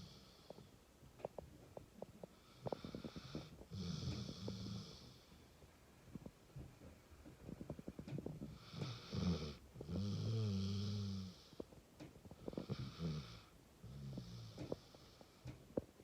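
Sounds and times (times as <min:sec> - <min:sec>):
dog snoring: 0:02.3 - 0:05.3, 0:08.4 - 0:11.6, 0:12.4 - 0:15.4.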